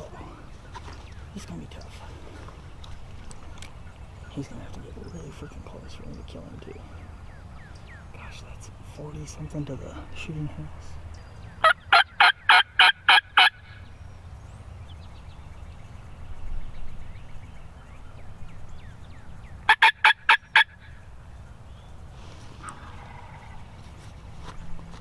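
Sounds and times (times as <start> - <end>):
turkey yelping: 11.6 - 13.8, 19.7 - 21.0, 22.6 - 23.6.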